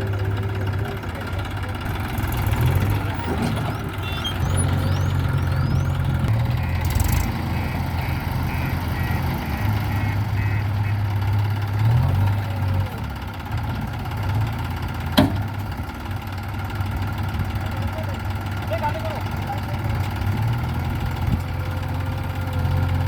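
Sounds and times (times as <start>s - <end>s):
tractor diesel engine idling: 0.0s - 23.0s
short electronic beeps: 3.6s - 7.0s.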